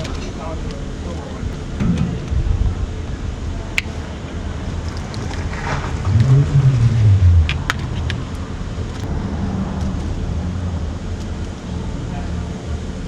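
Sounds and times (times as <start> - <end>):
vehicle engine passing by: 5.1 - 12.5.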